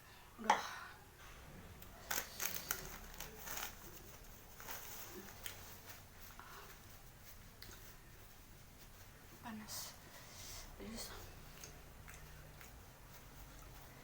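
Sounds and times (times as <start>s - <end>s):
eating sounds: 11.2s - 14.0s.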